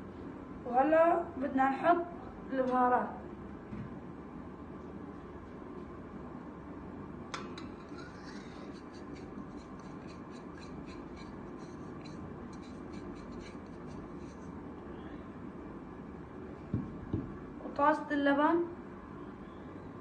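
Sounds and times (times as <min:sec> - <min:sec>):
spoon scraping container: 0:07.6 - 0:14.6.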